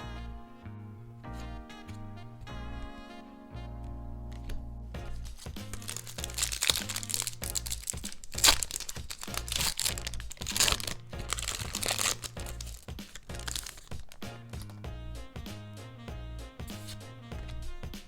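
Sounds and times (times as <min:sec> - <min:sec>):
background music: 0:00.0 - 0:18.0
packaging crinkling: 0:05.3 - 0:14.8.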